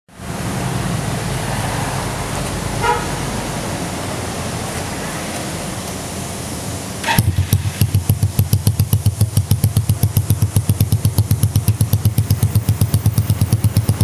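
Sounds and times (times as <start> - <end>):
motorcycle engine idling: 7.0 - 14.0.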